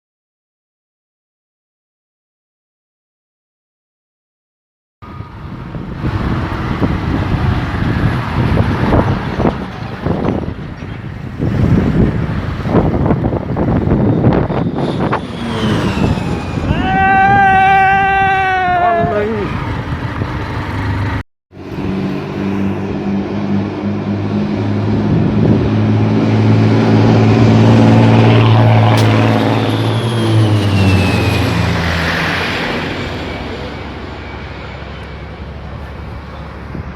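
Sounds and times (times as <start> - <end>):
wind buffeting microphone: 5.0 - 34.6
propeller aeroplane engine drone: 5.0 - 36.9.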